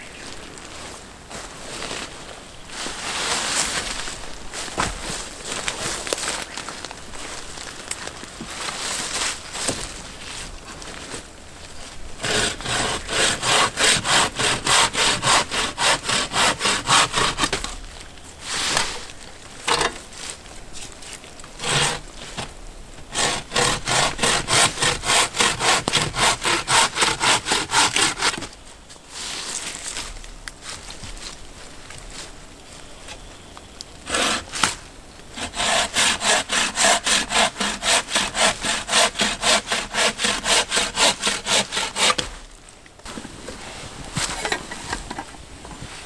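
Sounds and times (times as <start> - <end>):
hand saw cutting wood: 12.2 - 17.8, 19.6 - 20.1, 21.6 - 28.5, 34.0 - 42.4.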